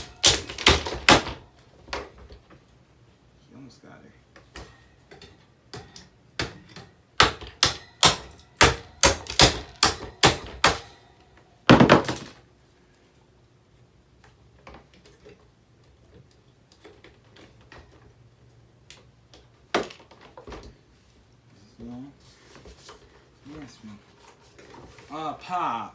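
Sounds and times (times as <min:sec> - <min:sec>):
hard blows striking a fan: 0:00.0 - 0:01.5, 0:05.8 - 0:11.0.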